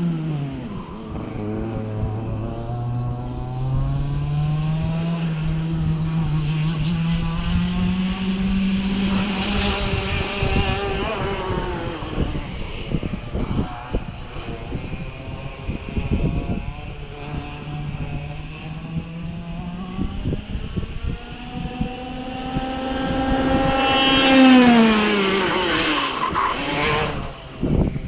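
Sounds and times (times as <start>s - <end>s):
race car engine accelerating: 0.0s - 27.4s.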